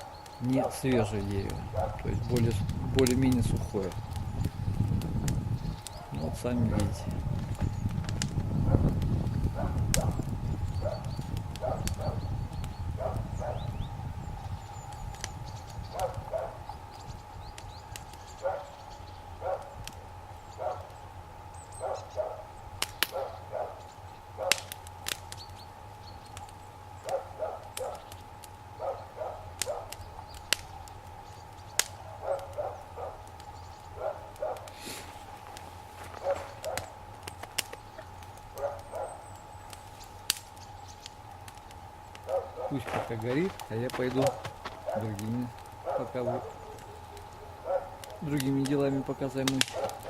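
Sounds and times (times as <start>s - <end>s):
campfire popping and crackling: 0.0s - 50.0s
dog barking: 1.7s - 2.0s, 6.0s - 7.0s, 9.6s - 10.2s, 10.8s - 12.2s, 13.0s - 13.7s, 15.9s - 16.6s, 18.4s - 18.8s, 19.4s - 19.8s, 20.6s - 20.9s, 21.8s - 22.5s, 23.1s - 23.8s, 24.4s - 24.7s, 27.0s - 28.0s, 28.8s - 30.0s, 32.0s - 33.2s, 34.0s - 34.7s, 36.2s - 37.0s, 38.5s - 39.2s, 42.2s - 42.9s, 44.2s - 45.1s, 45.8s - 48.2s, 49.7s - 50.0s
low rumble: 3.9s - 17.6s.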